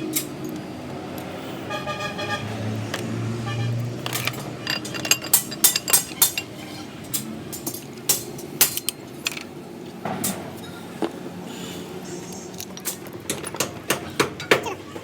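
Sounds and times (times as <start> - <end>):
tools clinking on metal parts: 4.0 - 9.6.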